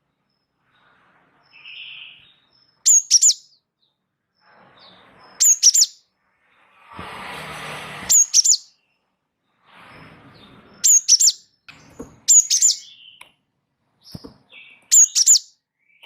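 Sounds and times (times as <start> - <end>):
songbird high chirps: 0.2 - 6.1, 8.1 - 9.1, 10.7 - 13.4, 14.0 - 16.0
raspy bird chattering: 12.3 - 13.0, 14.9 - 15.5.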